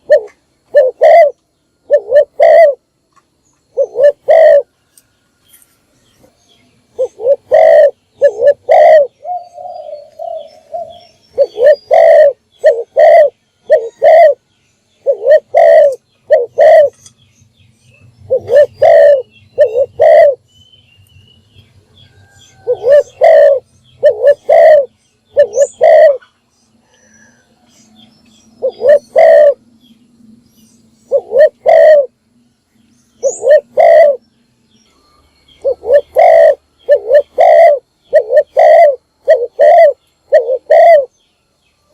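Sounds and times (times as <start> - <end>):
dove cooing: 0.0 - 2.9, 3.7 - 4.8, 6.9 - 14.4, 15.0 - 17.0, 18.3 - 20.4, 22.2 - 28.0, 28.6 - 29.7, 31.0 - 32.2, 33.2 - 34.2, 35.6 - 41.1.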